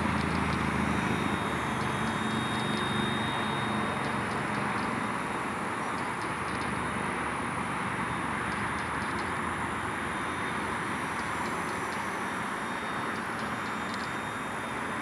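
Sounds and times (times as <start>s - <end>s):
helicopter rotor whoosh: 0.0s - 5.6s
faint high motor whine: 0.0s - 15.0s.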